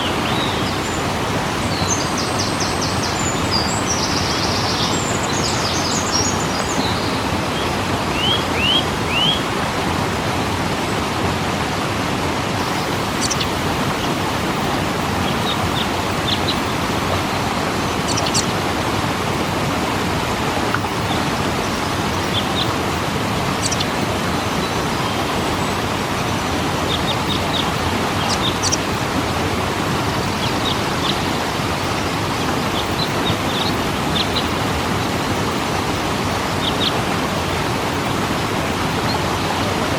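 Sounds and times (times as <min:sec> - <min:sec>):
waterfall rushing: 0:00.0 - 0:39.9
high bird chirps: 0:01.8 - 0:09.5, 0:12.6 - 0:13.6.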